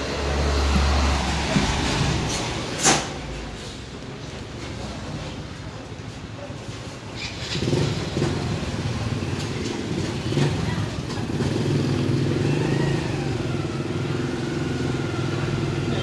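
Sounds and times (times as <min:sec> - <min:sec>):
small motorcycle engine running: 0:07.2 - 0:16.0.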